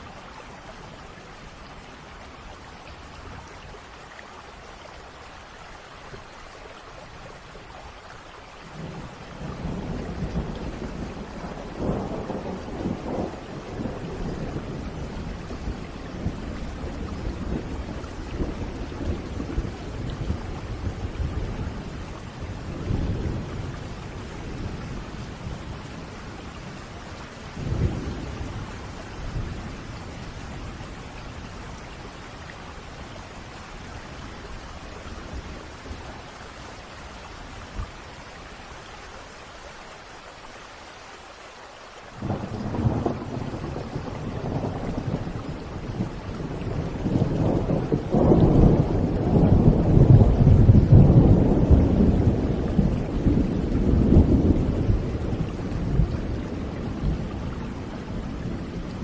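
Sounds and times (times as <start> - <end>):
steady rain: 0.0 - 59.0
thunder rumbling: 8.7 - 36.6, 42.2 - 59.0.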